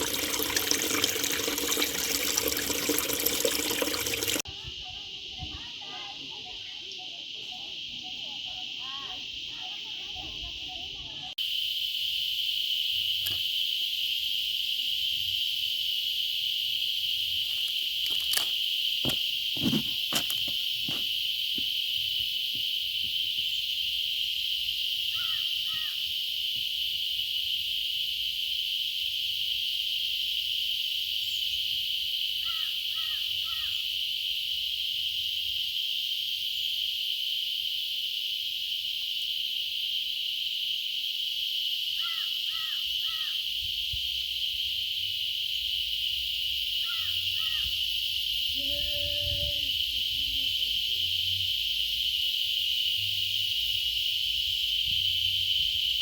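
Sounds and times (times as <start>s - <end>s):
high insect chorus: 0.0s - 56.0s
bird calling: 25.1s - 26.0s, 42.0s - 43.4s, 46.8s - 47.8s.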